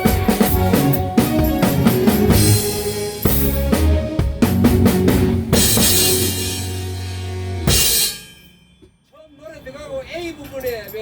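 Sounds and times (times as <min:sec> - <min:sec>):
live band playing: 0:00.0 - 0:08.1
crash cymbal: 0:05.6 - 0:08.7.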